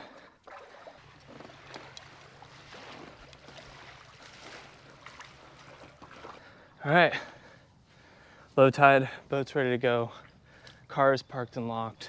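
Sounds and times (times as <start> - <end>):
water lapping against hull: 0.0 - 8.5, 10.0 - 11.0.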